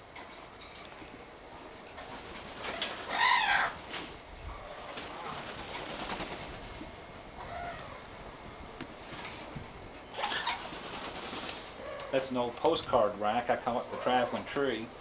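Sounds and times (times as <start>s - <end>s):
parrot squawking: 2.7s - 3.8s.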